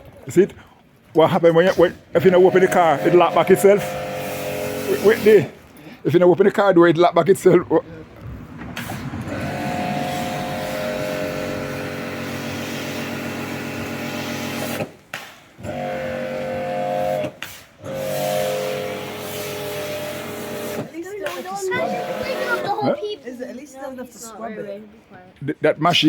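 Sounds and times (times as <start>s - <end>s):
pressure washer running: 1.7s - 5.7s, 8.8s - 22.9s.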